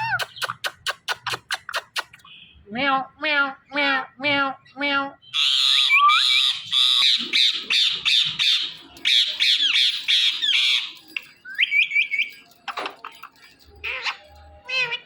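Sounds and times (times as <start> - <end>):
soft bird chirps: 5.2 - 15.0
parakeet squawking: 5.3 - 11.0, 13.8 - 15.0.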